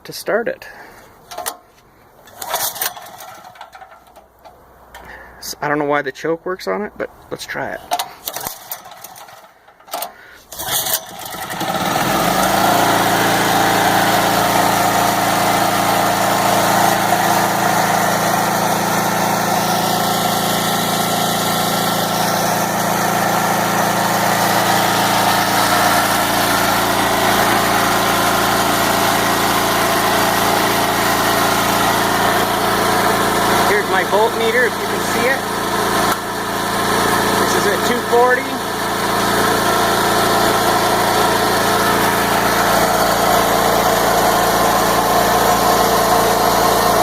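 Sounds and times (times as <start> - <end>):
generator engine starting and running: 0.6 - 5.8, 7.6 - 47.0.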